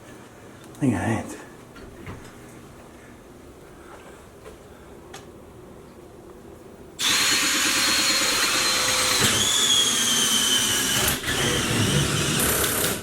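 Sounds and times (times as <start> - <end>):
power drill whining: 7.0 - 13.0.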